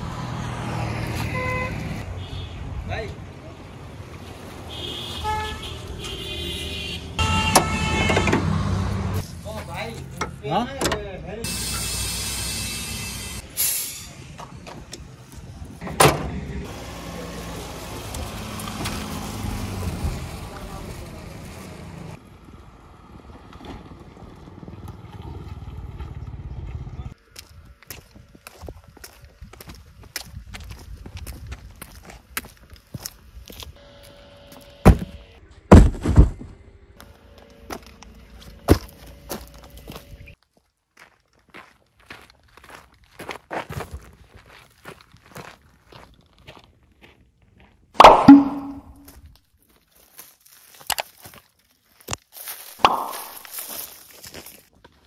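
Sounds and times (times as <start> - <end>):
sneaker footsteps on hard ground: 27.3 - 33.8, 37.0 - 47.8, 48.4 - 55.0.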